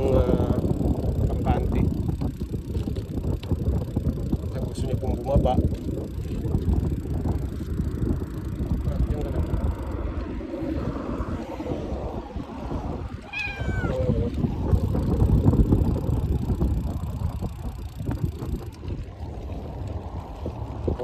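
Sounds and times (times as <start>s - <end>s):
wind rumble on microphone: 0.0s - 21.0s
cat meowing: 13.2s - 14.4s.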